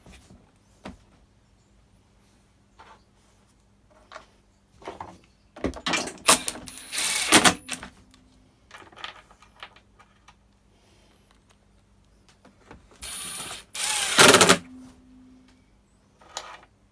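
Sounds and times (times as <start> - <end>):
plastic parts and tools clattering: 4.8 - 8.0, 13.0 - 14.6.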